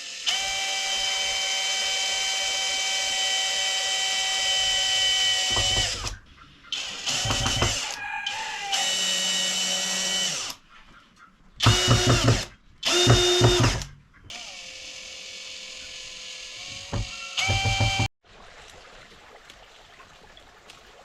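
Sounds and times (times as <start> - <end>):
small motor whining: 11.6 - 18.1.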